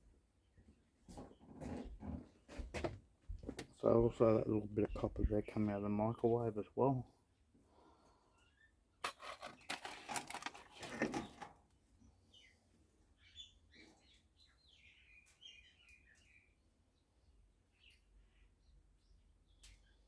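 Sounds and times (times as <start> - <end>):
clattering and rustling: 9.0 - 11.7
faint bird chirps: 12.3 - 16.6.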